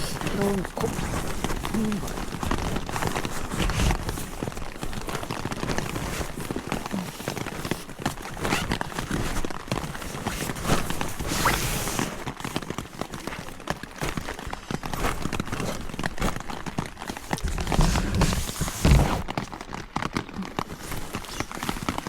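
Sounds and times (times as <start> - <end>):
rain pattering: 0.0 - 10.0, 19.2 - 22.0
small knocks and rustles: 0.0 - 22.0.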